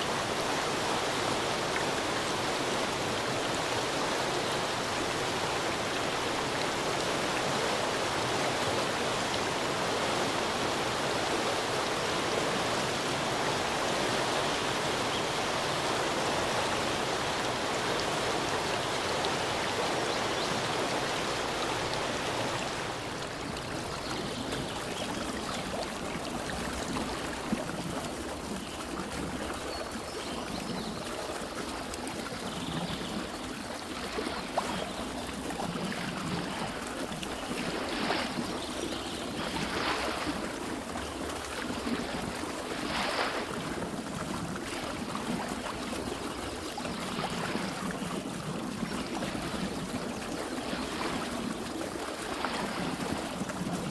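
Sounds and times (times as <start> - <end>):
stream water rushing: 0.0 - 53.9.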